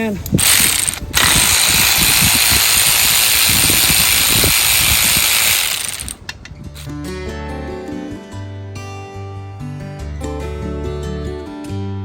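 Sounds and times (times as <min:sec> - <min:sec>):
tool rattling: 0:00.2 - 0:06.2
compressed-air tool hissing: 0:00.4 - 0:06.2.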